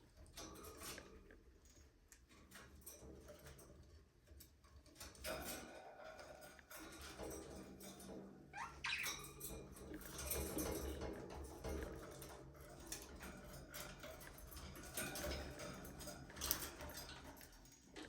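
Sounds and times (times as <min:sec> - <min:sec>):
budgerigars chirping and chattering: 0:08.6 - 0:09.2.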